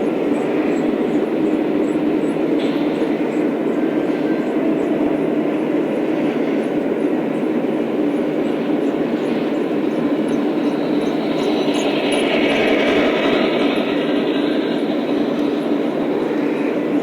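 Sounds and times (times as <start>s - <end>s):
model train rolling rumble: 5.8s - 17.0s.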